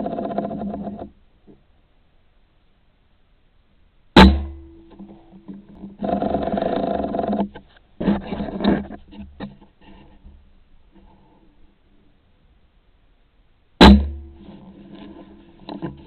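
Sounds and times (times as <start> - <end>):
short ringing hum: 4.2 - 5.4.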